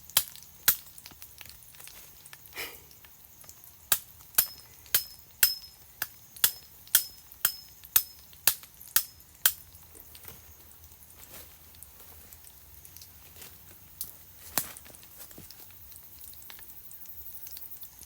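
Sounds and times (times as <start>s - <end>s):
sharp tool blows with metallic ring: 4.4s - 5.8s, 6.4s - 8.2s.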